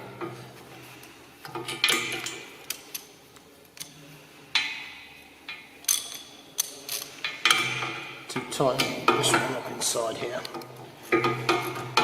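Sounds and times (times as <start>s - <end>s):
ratchet and socket clinking: 5.8s - 7.6s.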